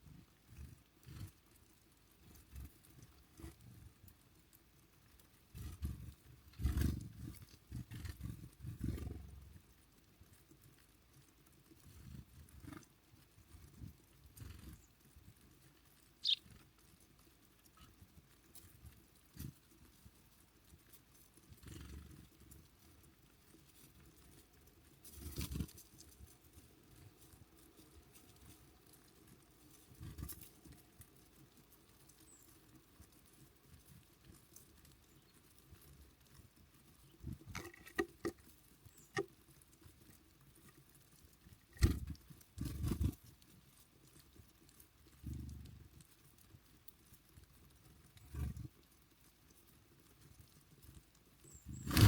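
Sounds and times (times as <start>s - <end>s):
small birds tapping and clicking: 0.0s - 52.0s.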